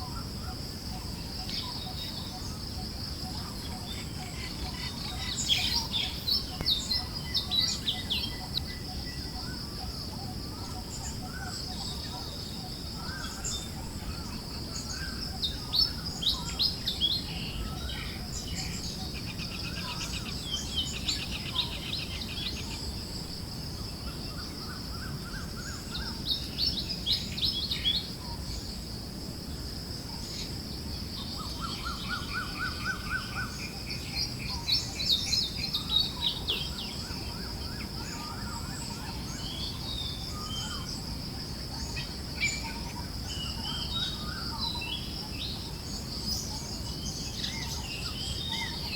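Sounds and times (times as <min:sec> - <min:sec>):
constant high hiss: 0:00.0 - 0:48.9
birds chirping and trilling: 0:03.3 - 0:22.8.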